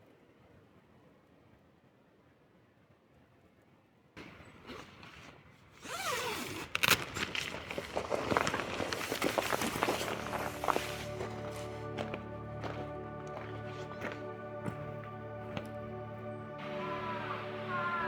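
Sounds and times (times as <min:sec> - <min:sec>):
handling rustling and rasping: 0:04.6 - 0:12.1.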